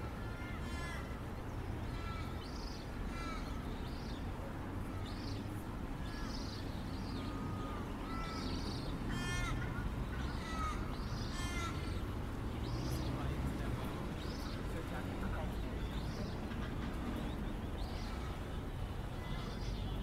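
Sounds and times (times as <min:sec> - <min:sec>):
crows cawing: 0:00.3 - 0:01.2, 0:03.1 - 0:03.6, 0:07.5 - 0:12.0.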